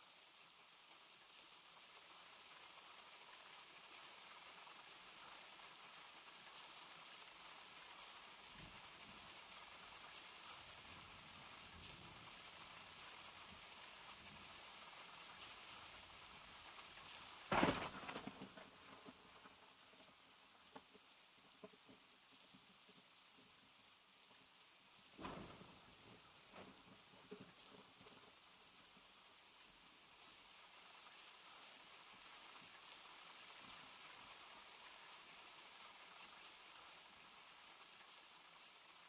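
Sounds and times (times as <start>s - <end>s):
steady rain: 0.0s - 39.0s.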